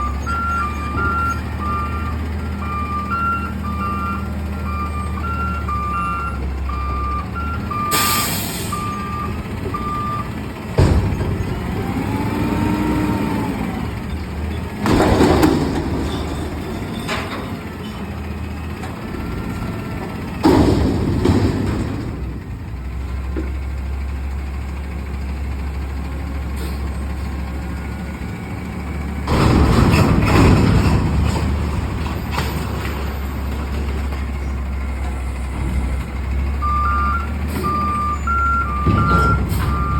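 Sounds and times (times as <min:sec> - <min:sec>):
reversing alarm beeps: 0:00.0 - 0:10.3, 0:36.6 - 0:39.9
truck engine running: 0:00.0 - 0:39.9.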